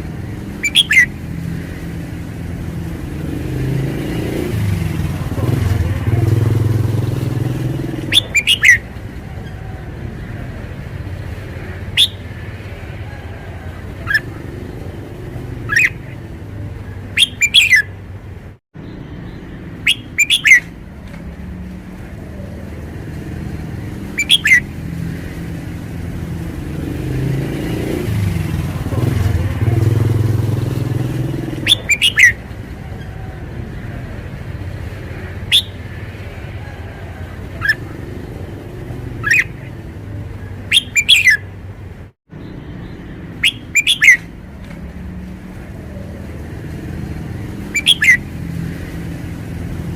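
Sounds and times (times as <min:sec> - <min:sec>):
traffic rumble: 0:00.0 - 0:49.9
bird whistling song: 0:00.6 - 0:01.2, 0:07.9 - 0:09.6, 0:11.9 - 0:12.4, 0:14.0 - 0:14.4, 0:15.6 - 0:16.2, 0:17.1 - 0:17.9, 0:19.3 - 0:20.8, 0:24.0 - 0:24.8, 0:31.6 - 0:33.2, 0:35.4 - 0:35.9, 0:37.5 - 0:38.0, 0:39.2 - 0:39.8, 0:40.7 - 0:41.5, 0:42.8 - 0:44.3, 0:47.6 - 0:48.3.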